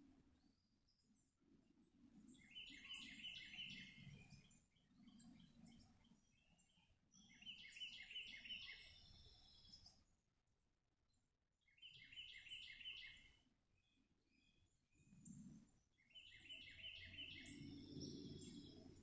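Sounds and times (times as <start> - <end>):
songbird singing: 2.2 - 10.1, 11.7 - 14.7, 16.0 - 19.0.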